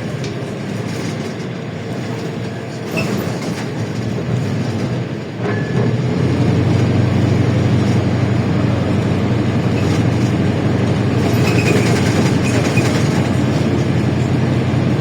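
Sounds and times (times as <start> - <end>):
bus engine running: 0.0 - 15.0
road and body noise: 5.8 - 15.0.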